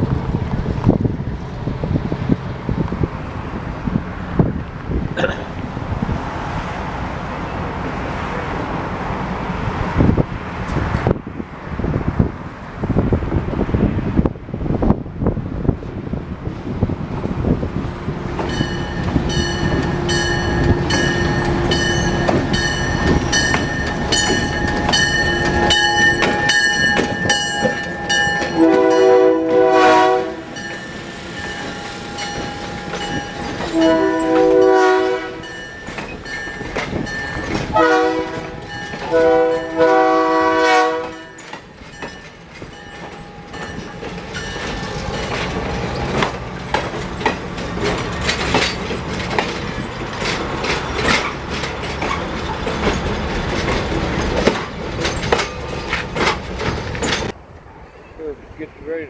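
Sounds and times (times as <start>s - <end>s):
diesel locomotive engine running: 0.0s - 59.0s
passenger cars rolling past: 0.0s - 59.0s
wheels clicking on rails: 17.1s - 29.0s, 30.5s - 34.7s, 35.4s - 39.9s, 41.0s - 57.4s
train air horn blasts: 28.4s - 30.6s, 33.8s - 35.6s, 37.7s - 41.4s.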